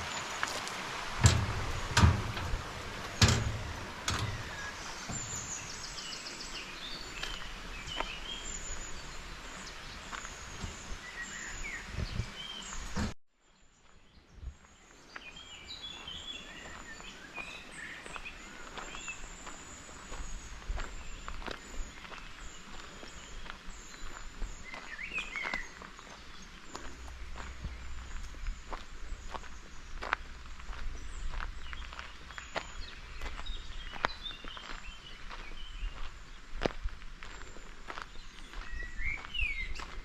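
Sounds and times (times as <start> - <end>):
small birds chirping: 0.0 - 40.0
heavy footsteps: 0.5 - 6.1, 26.7 - 32.1.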